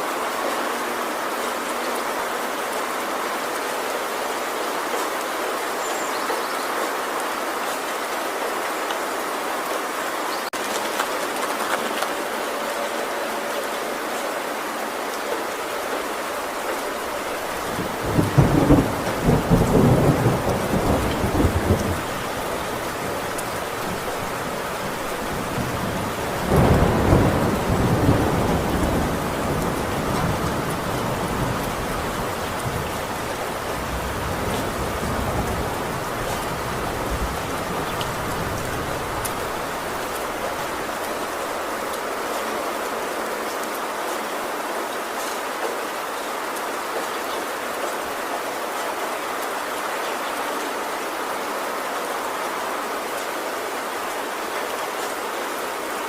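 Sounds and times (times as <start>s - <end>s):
heavy rain on a metal roof: 0.0s - 56.0s
thunder rumbling: 16.9s - 41.8s.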